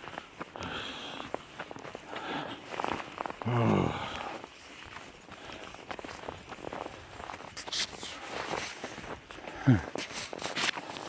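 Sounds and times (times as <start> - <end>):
footsteps on a trail: 0.0 - 11.0
man grunting: 3.4 - 4.2, 9.6 - 9.9.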